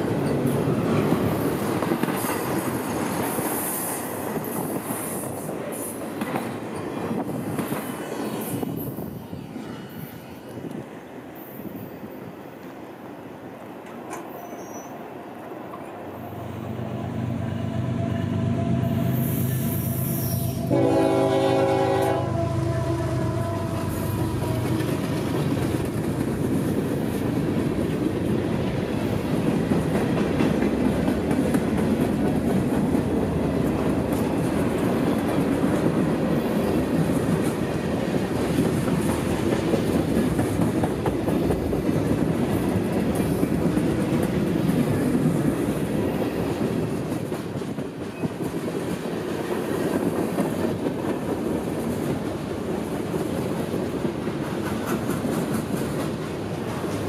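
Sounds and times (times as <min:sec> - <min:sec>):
diesel locomotive engine: 0:00.0 - 0:48.1
air horn blast: 0:17.2 - 0:25.0.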